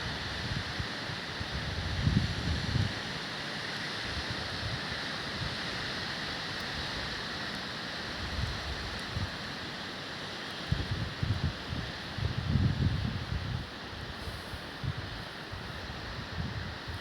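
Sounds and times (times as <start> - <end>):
wind rushing through trees: 0.0 - 17.0
wind buffeting microphone: 10.7 - 14.2.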